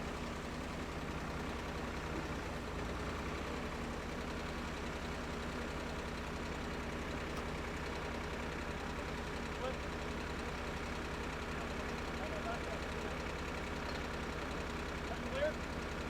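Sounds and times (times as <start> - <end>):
drill rig engine running: 0.0 - 16.0.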